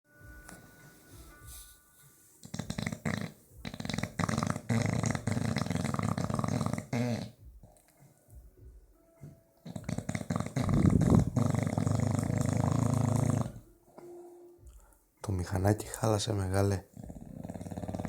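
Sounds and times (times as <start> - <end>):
dog snoring with fluttering rattle: 2.4 - 7.3, 9.6 - 13.7, 16.9 - 18.0.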